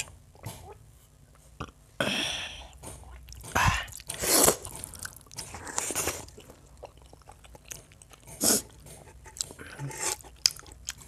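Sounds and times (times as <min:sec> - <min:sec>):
chewing and wet mouth noises: 0:03.0 - 0:11.0.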